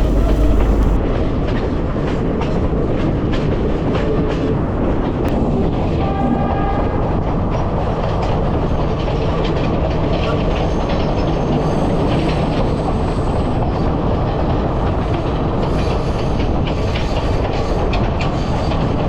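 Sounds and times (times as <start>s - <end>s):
high ringing tone: 0.0s - 1.0s
train rumbling on track: 0.0s - 19.0s.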